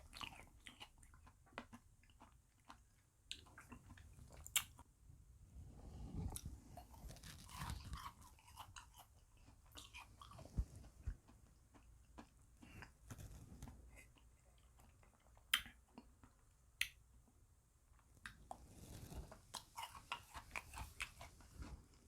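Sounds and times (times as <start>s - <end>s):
chewing and crunching ice cream: 0.0s - 4.9s, 6.2s - 17.4s, 18.0s - 22.0s.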